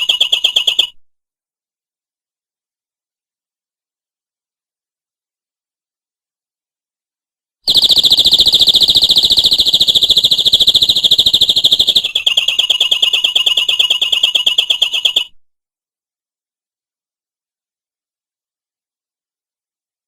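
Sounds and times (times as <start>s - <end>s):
canary singing a fast trill: 0.0s - 1.0s, 7.7s - 15.3s.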